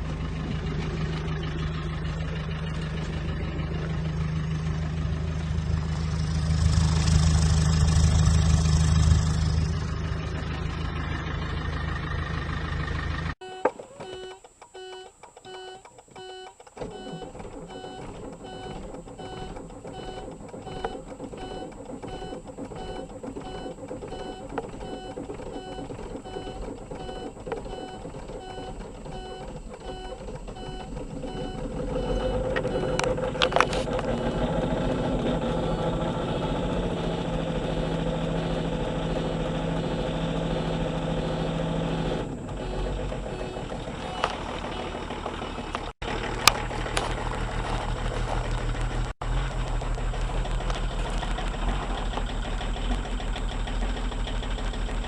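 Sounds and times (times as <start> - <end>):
diesel engine cold start: 0.0 - 55.0
car warning chime beeping: 13.4 - 34.7, 42.5 - 46.0.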